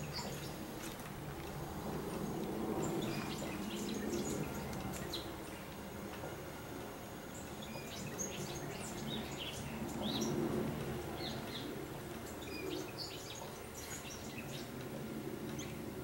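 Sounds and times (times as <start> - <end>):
small birds chirping: 0.0 - 1.0, 2.1 - 5.8, 7.2 - 10.5, 11.1 - 14.8
steady low rumble: 0.0 - 16.0.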